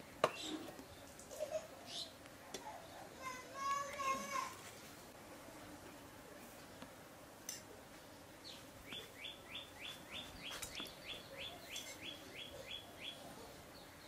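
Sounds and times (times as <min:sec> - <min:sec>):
bird chirping: 0:08.4 - 0:14.0.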